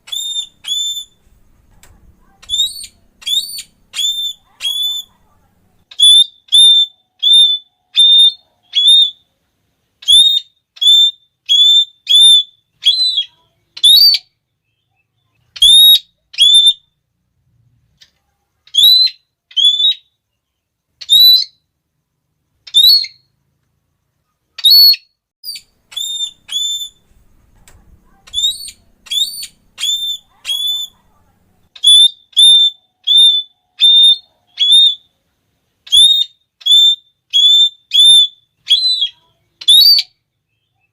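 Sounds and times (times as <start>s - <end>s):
parrot shrill calls: 0.0s - 1.3s, 2.2s - 5.2s, 5.9s - 9.2s, 10.0s - 14.4s, 15.6s - 16.9s, 18.7s - 20.2s, 21.0s - 21.6s, 22.7s - 23.3s, 24.6s - 27.2s, 28.0s - 31.0s, 31.8s - 35.1s, 35.8s - 40.2s.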